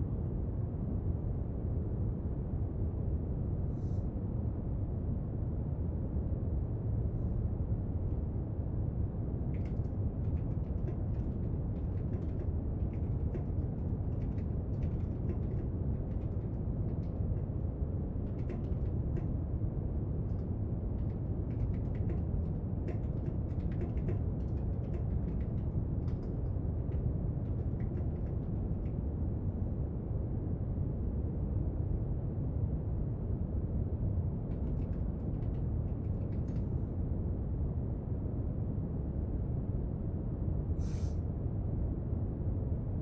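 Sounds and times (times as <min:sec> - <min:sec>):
light clicks and taps: 0:09.5 - 0:17.5, 0:18.2 - 0:19.3, 0:20.3 - 0:29.0, 0:34.5 - 0:36.8.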